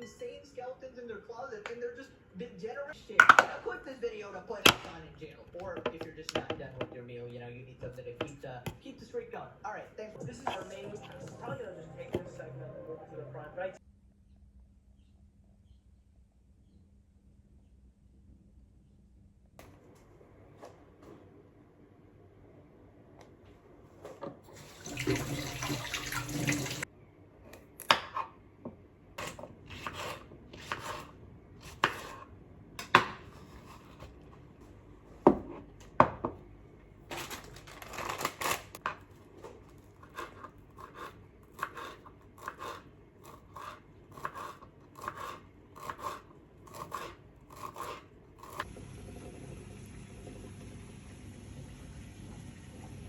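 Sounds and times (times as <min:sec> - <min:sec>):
water running: 0:24.0 - 0:26.9, 0:47.9 - 0:53.0.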